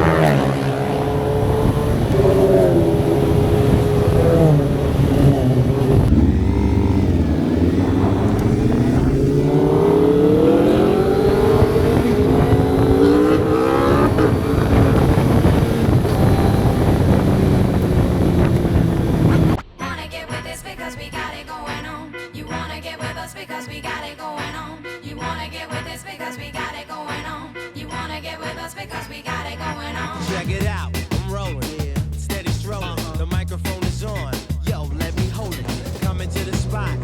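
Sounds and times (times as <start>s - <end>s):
motorcycle engine revving: 0.0s - 19.6s, 35.0s - 37.0s.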